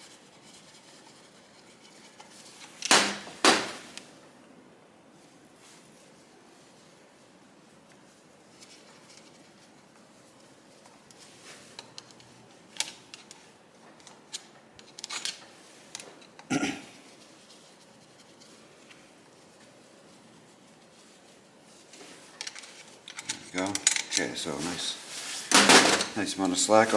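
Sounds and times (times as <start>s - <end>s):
sharp knock: 2.9s - 3.9s.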